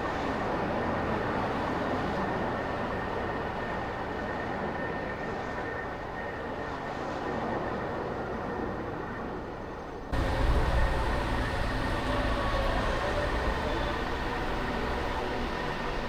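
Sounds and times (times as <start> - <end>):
road and traffic noise: 10.2 - 16.0.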